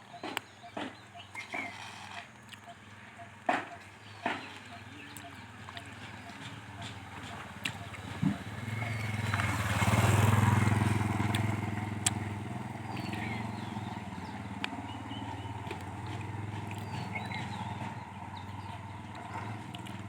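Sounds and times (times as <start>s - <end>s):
faint bird chirps: 0.0s - 7.0s
vehicle engine running: 0.0s - 20.0s.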